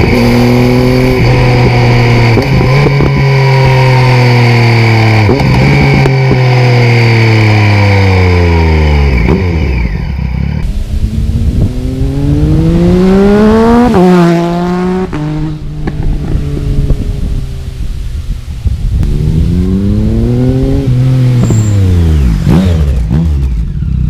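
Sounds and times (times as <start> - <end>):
motorcycle engine revving: 0.0 - 24.0
exhaust pops and crackles: 15.8 - 17.0.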